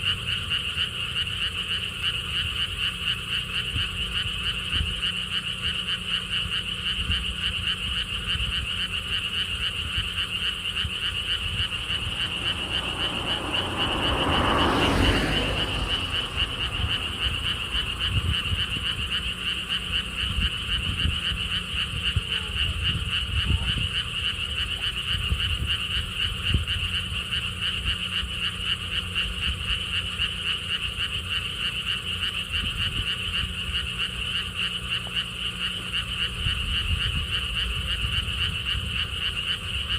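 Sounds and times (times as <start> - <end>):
frogs croaking: 0.0 - 39.9
low rumble: 9.8 - 23.9
broad swell of noise: 11.3 - 19.0.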